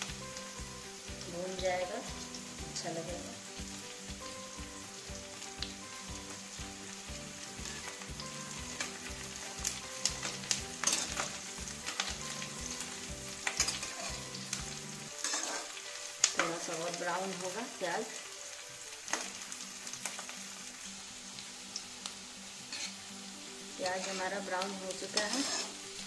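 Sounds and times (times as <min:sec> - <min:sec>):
onions sizzling in hot fat: 0:00.0 - 0:26.0
spatula scraping pan: 0:09.7 - 0:15.8, 0:22.7 - 0:23.0, 0:23.8 - 0:26.0.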